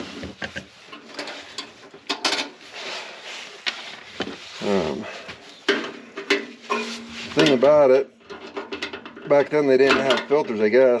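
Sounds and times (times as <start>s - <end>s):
metal tools clinking and scraping: 5.7s - 11.0s
loud rough metal scrape: 6.6s - 9.0s.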